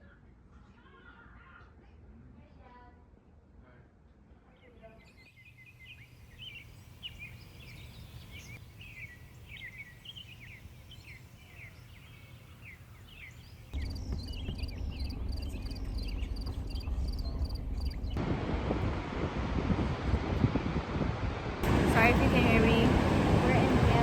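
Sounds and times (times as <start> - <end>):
small birds chirping: 5.0 - 18.2
rapid repeated high chirping: 13.7 - 18.2
low rumble: 13.8 - 24.0
wind noise on microphone: 13.8 - 24.0.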